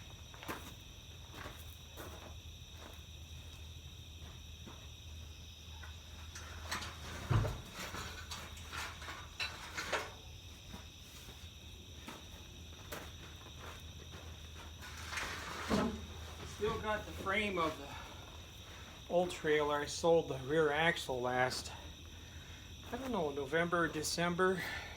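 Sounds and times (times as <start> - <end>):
footsteps: 0.0 - 6.0, 10.6 - 19.4.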